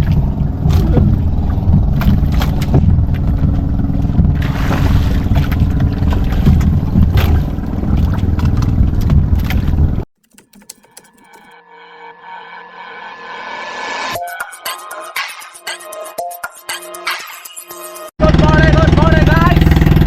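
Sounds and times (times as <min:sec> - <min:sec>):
boat engine running: 0:00.0 - 0:11.5, 0:18.2 - 0:20.0
water rushing: 0:04.3 - 0:08.4.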